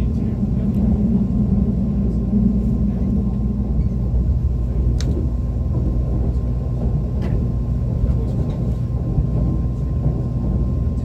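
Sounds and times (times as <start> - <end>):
electric train rumble: 0.0 - 11.0.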